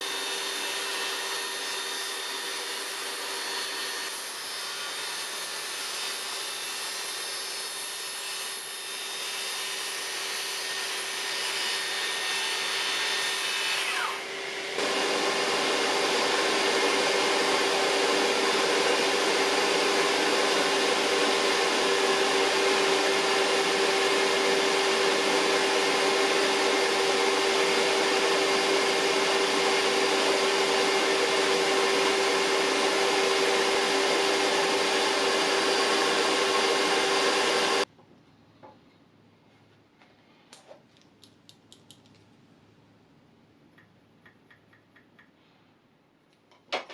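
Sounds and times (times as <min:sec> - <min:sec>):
circular saw motor whining: 0:13.8 - 0:37.8.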